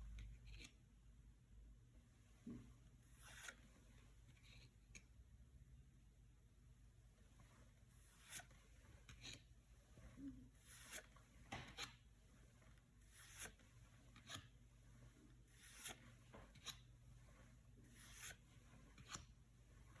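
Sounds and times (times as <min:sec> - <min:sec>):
trading cards sliding together: 0:03.1 - 0:03.8, 0:08.0 - 0:09.4, 0:10.0 - 0:12.0, 0:13.0 - 0:20.0.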